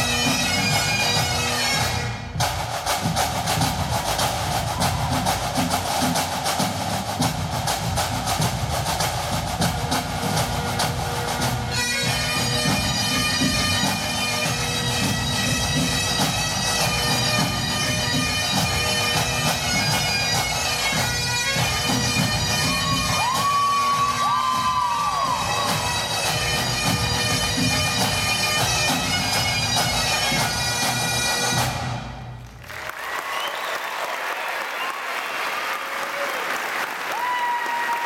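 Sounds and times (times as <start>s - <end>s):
bagpipes playing: 0.0s - 2.4s, 10.1s - 32.1s
snare drums rolling: 0.0s - 32.1s.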